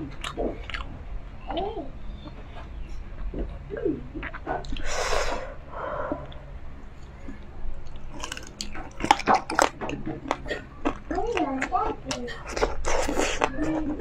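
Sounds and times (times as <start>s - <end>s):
wet chewing and lip smacks: 0.2s - 0.9s, 7.0s - 13.6s.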